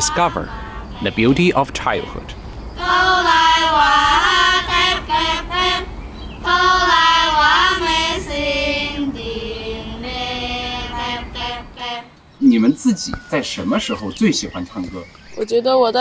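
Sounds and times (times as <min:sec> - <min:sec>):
girls singing folk song: 0:00.0 - 0:01.5, 0:02.7 - 0:12.2.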